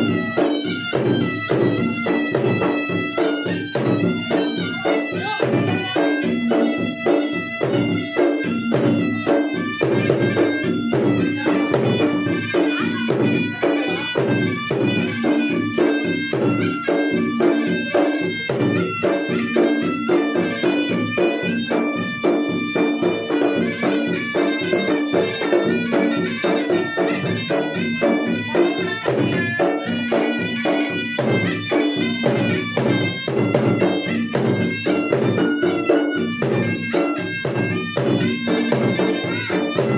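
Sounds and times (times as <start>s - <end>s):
drums beaten fast: 0.0s - 39.9s
shrill double-reed melody: 0.0s - 39.9s.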